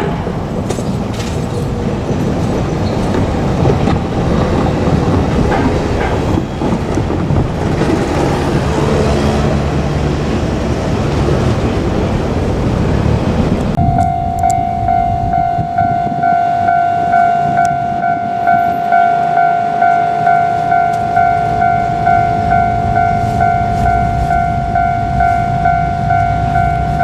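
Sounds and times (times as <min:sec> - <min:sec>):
passenger train rumbling past: 0:00.0 - 0:27.0
wheel clicks over rail joints: 0:00.5 - 0:09.6.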